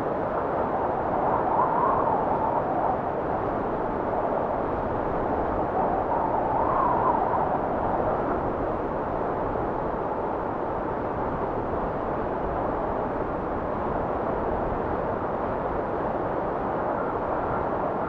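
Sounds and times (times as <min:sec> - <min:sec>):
blizzard wind blowing: 0:00.0 - 0:18.0
wind whistle: 0:05.8 - 0:08.2.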